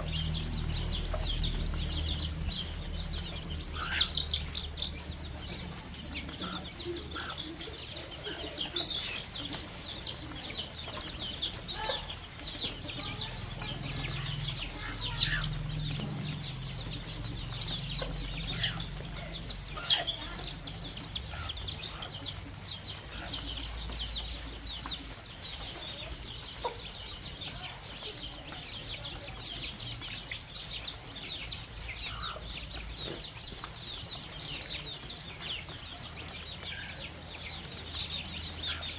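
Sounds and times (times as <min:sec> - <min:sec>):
baby chicks peeping: 0:00.0 - 0:38.9.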